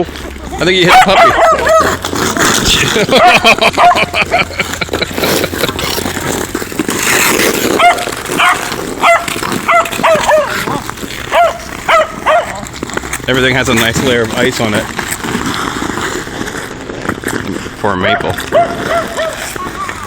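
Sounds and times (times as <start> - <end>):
scraping on icy snow: 0.0 - 20.0
puppy yapping: 0.9 - 2.0, 3.2 - 4.0, 7.7 - 12.6, 18.5 - 19.9.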